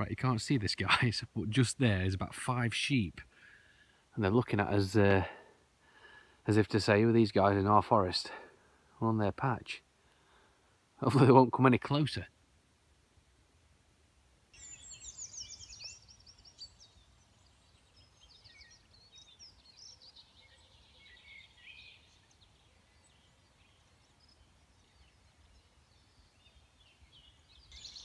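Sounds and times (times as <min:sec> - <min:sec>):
small birds singing: 0:14.5 - 0:28.0.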